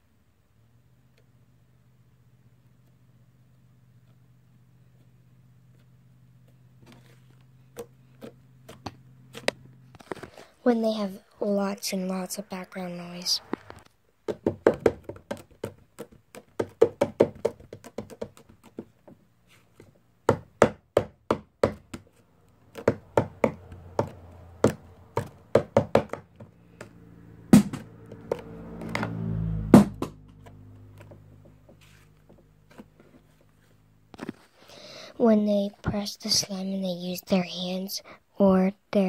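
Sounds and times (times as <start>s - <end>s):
sharp taps and knocks: 13.6s - 19.2s, 20.2s - 22.1s, 22.7s - 31.8s.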